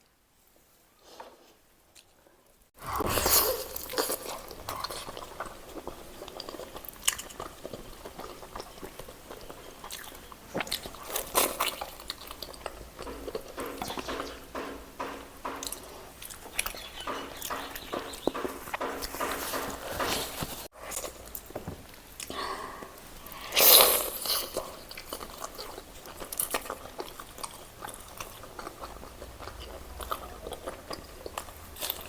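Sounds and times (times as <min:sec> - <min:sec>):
chewing chicken meat: 0:03.0 - 0:20.0, 0:20.8 - 0:32.0.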